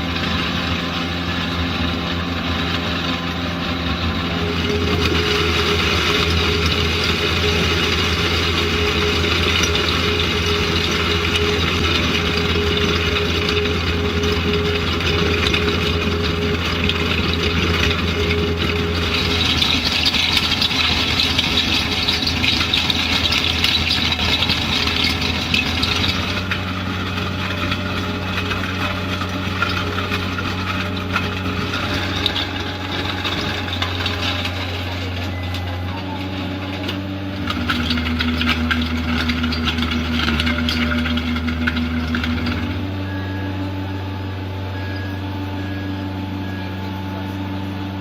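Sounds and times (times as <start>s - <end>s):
construction machinery engine running: 0.0s - 48.0s.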